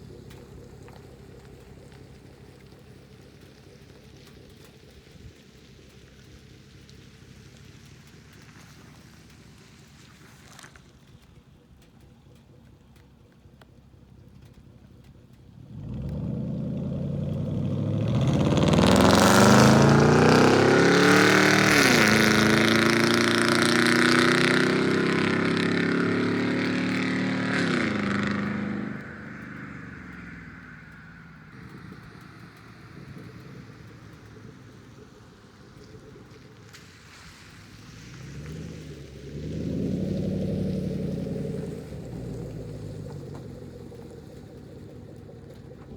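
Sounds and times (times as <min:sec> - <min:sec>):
car engine accelerating hard: 0:00.0 - 0:45.9.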